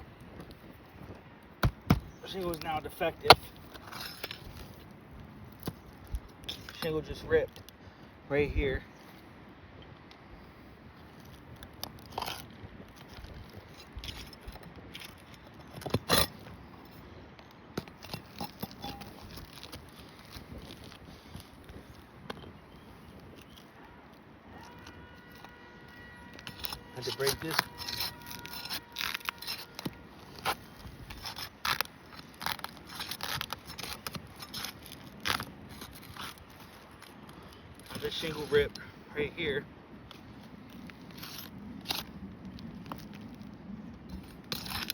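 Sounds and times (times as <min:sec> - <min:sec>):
roof shingles crunching and scraping: 0:00.0 - 0:08.0, 0:11.0 - 0:44.9
sharp crack of shingle: 0:01.6 - 0:04.9, 0:26.4 - 0:38.7, 0:44.1 - 0:44.9
loud rasping bursts: 0:26.2 - 0:31.6.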